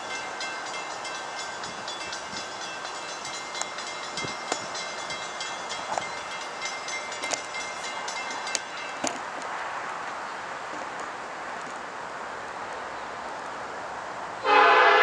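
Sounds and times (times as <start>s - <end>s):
distant train rushing noise: 0.0s - 15.0s.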